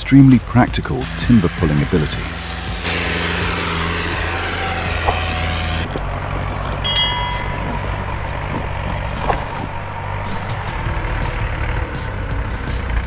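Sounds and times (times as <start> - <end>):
heavy machine engine rumbling: 0.7 - 6.0
brief high-pitched tone: 6.7 - 7.9.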